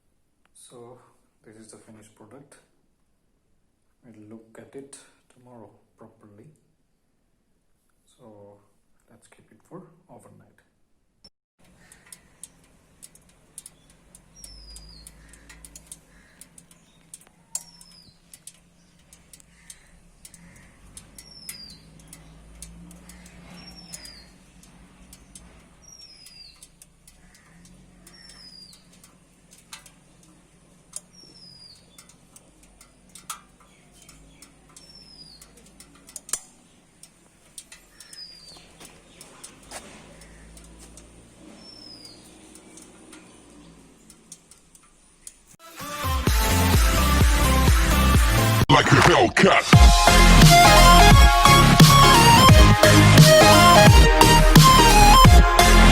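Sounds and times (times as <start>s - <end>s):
faint clicks: 11.6s - 45.6s.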